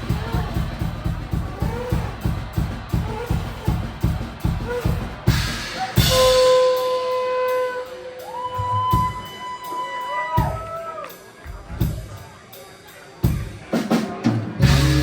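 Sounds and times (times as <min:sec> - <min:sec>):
steady drum beat: 0:00.0 - 0:09.8, 0:10.4 - 0:10.8, 0:11.5 - 0:15.0
live band playing: 0:00.0 - 0:10.6, 0:13.2 - 0:15.0.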